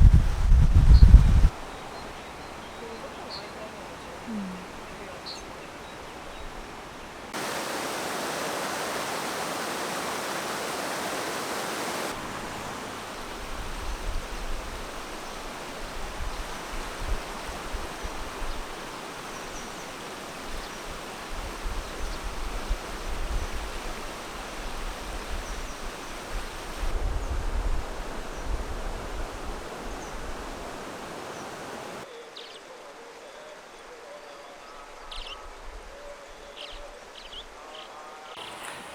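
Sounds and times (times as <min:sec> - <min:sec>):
stream water rushing: 0:01.4 - 0:32.1, 0:38.4 - 0:38.9.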